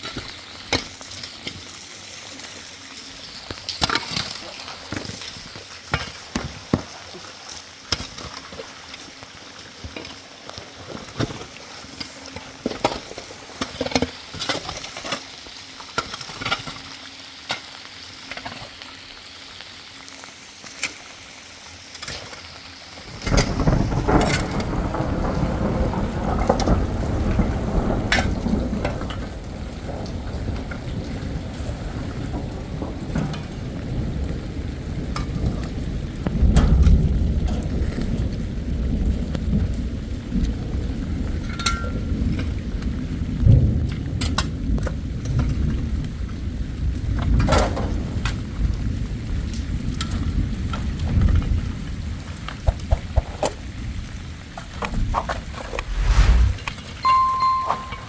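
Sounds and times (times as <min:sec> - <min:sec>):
heavy downpour with low rumble: 0:00.0 - 0:57.9
rain hissing: 0:55.4 - 0:57.6.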